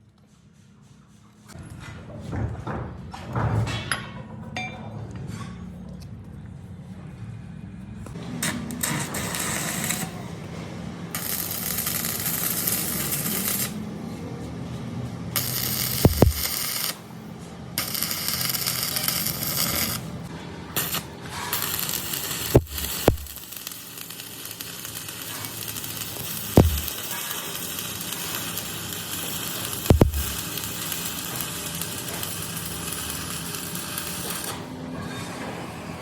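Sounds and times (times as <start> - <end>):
bursts of hiss: 15.4 - 17.0, 20.8 - 32.4
sharp knocks: 16.1 - 16.4, 26.6 - 26.9, 29.9 - 30.3.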